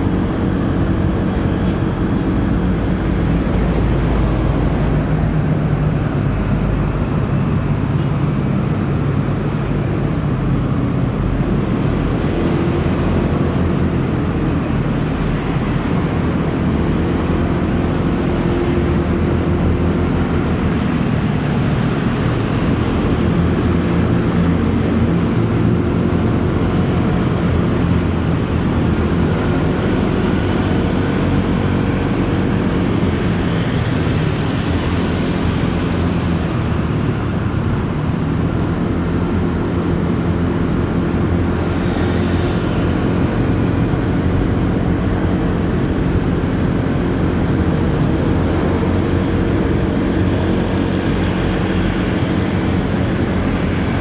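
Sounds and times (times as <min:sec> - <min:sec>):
motorcycle engine and road noise: 0:00.0 - 0:54.0
surrounding traffic: 0:00.0 - 0:54.0.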